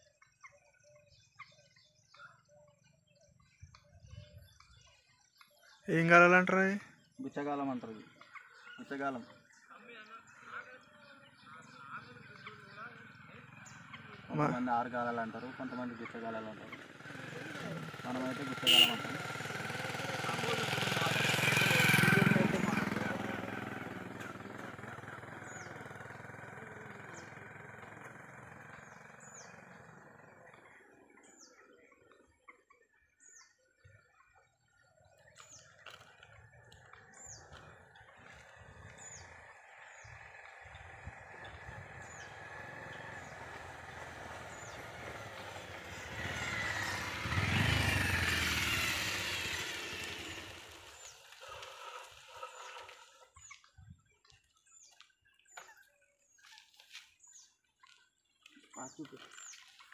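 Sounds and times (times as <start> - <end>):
motor vehicle passing: 11.0 - 31.5, 34.8 - 53.6.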